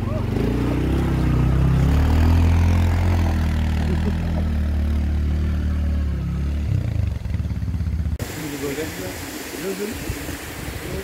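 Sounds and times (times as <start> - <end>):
atv engine idling: 0.0 - 9.1.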